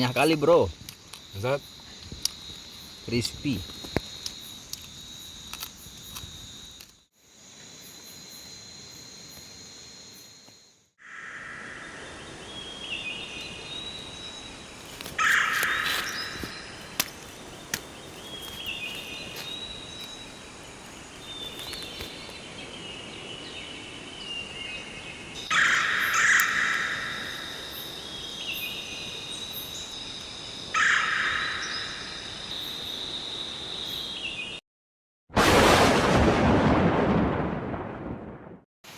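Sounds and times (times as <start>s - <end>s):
birds calling: 0.0s - 6.3s, 12.5s - 20.1s, 25.4s - 34.2s
high insect drone: 0.0s - 34.6s.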